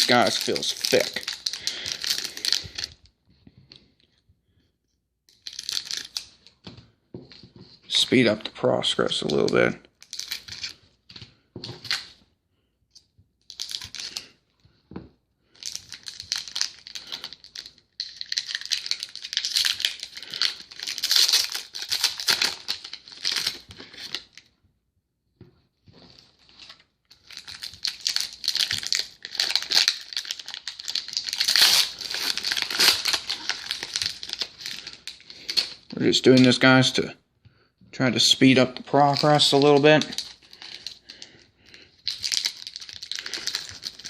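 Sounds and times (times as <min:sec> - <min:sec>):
card pack wrappers tearing: 0:00.0 - 0:02.9, 0:05.4 - 0:06.3, 0:15.6 - 0:24.3, 0:27.1 - 0:36.6, 0:39.0 - 0:41.4, 0:42.0 - 0:44.0
wrapper crinkling: 0:00.0 - 0:03.0, 0:05.3 - 0:06.4, 0:13.5 - 0:14.3, 0:15.6 - 0:24.4, 0:26.1 - 0:36.6, 0:38.9 - 0:44.0.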